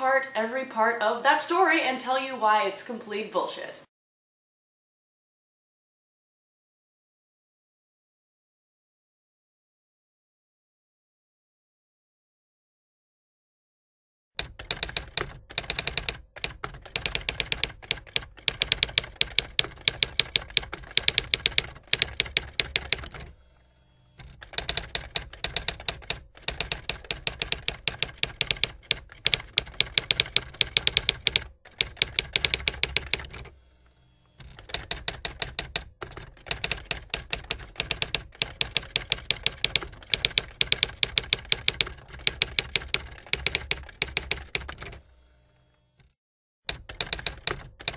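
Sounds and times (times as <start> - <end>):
keyboard keystroke clicks: 24.4 - 33.4, 34.5 - 45.0.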